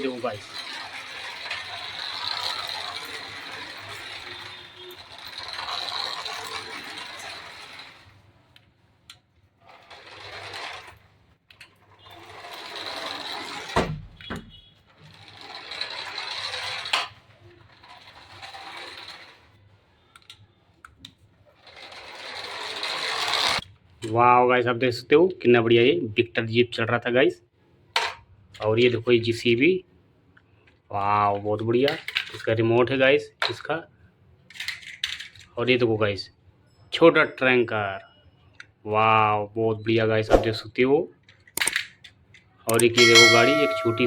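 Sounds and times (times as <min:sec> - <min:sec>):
toy car motor whirring: 0:00.0 - 0:08.0, 0:09.7 - 0:11.0, 0:12.0 - 0:13.8, 0:15.1 - 0:19.6, 0:21.6 - 0:23.6.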